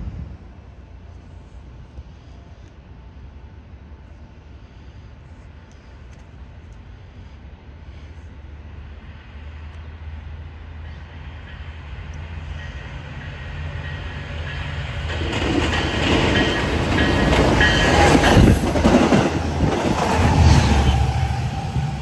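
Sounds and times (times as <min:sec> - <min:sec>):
train passing: 0:00.0 - 0:22.0
wheels clacking over rails: 0:15.0 - 0:20.4.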